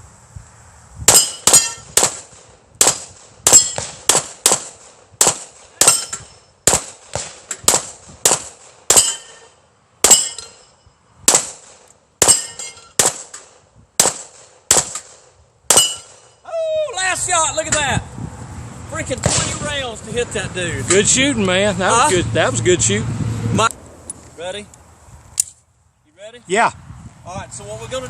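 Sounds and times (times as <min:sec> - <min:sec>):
clang of struck steel: 0:01.1 - 0:01.9, 0:03.5 - 0:03.9, 0:05.8 - 0:06.5, 0:08.9 - 0:10.9, 0:12.2 - 0:13.4, 0:15.7 - 0:16.4
gunshots: 0:01.1 - 0:09.3, 0:10.0 - 0:10.4, 0:11.3 - 0:16.3, 0:19.2 - 0:19.7.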